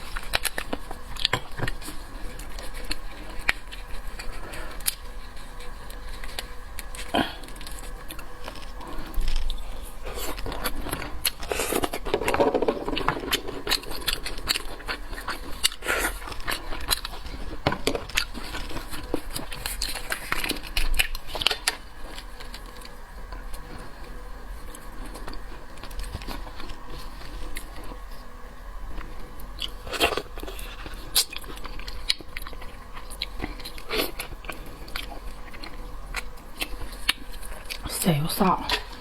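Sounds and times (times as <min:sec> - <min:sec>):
chewing and crunching seafood: 0:00.0 - 0:39.0.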